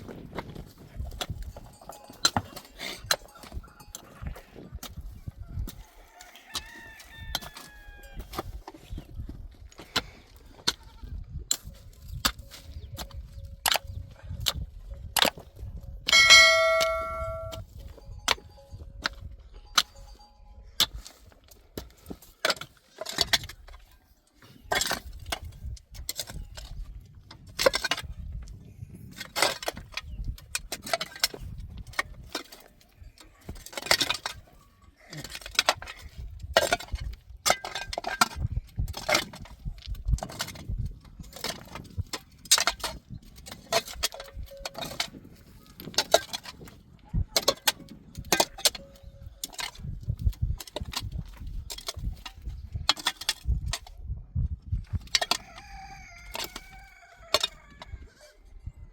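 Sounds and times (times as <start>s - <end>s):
livestock bells clinking: 1.2s - 4.7s, 16.1s - 21.3s, 44.2s - 45.2s.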